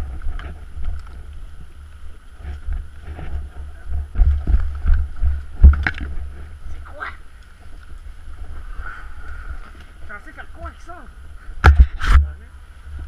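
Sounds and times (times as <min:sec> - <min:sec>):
wind buffeting microphone: 0:00.0 - 0:13.0
knocks and bumps: 0:11.6 - 0:12.2.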